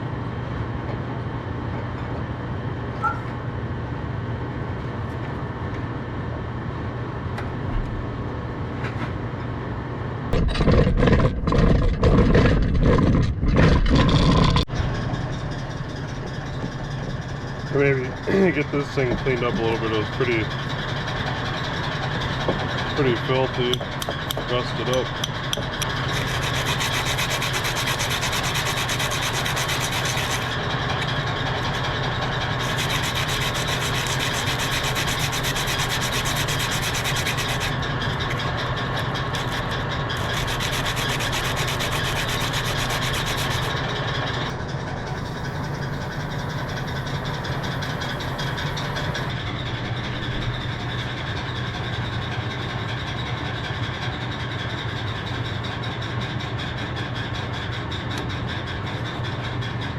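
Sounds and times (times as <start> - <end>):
motor hum: 10.3 - 52.3
power tool scrubbing metal: 25.8 - 43.9, 45.0 - 49.3.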